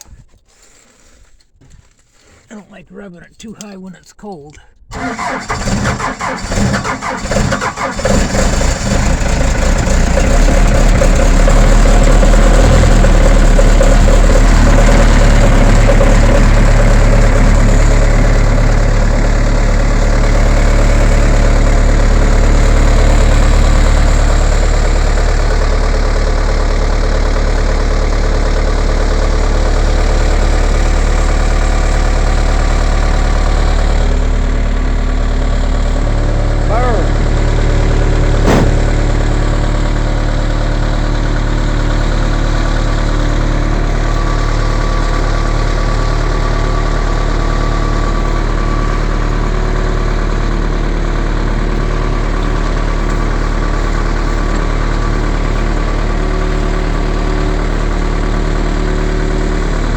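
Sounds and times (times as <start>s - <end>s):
engine sputtering and idling: 4.9s - 59.9s.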